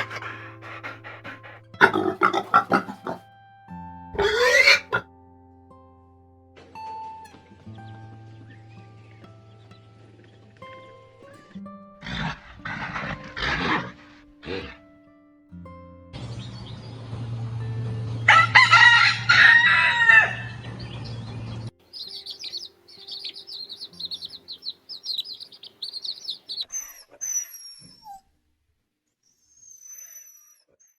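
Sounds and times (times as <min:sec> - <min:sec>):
rooster crowing: 0:18.3 - 0:20.6
high-pitched bird chirps: 0:21.9 - 0:28.2.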